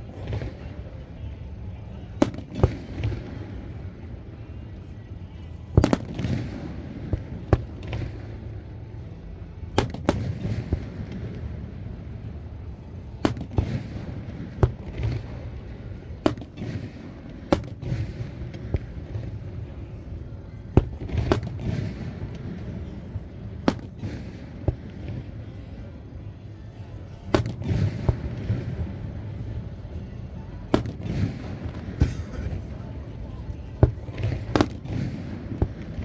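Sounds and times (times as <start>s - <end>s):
fireworks bangs and pops: 5.8s - 6.4s, 9.8s - 10.6s, 13.2s - 13.9s, 16.2s - 16.8s, 21.2s - 21.9s, 23.7s - 24.2s, 27.3s - 28.2s, 30.7s - 32.8s, 34.2s - 35.8s.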